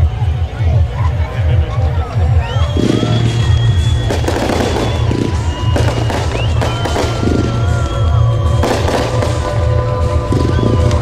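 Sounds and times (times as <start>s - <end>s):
loud music with heavy bass: 0.0s - 11.0s
rising firework whistles: 2.5s - 11.0s
fireworks bangs and crackles: 2.7s - 11.0s.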